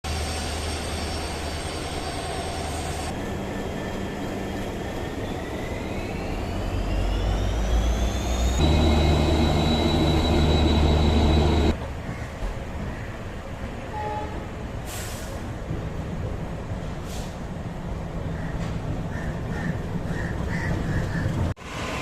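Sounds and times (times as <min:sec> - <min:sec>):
train whine rising in pitch: 0:00.1 - 0:11.8
train running rumble: 0:00.1 - 0:13.0.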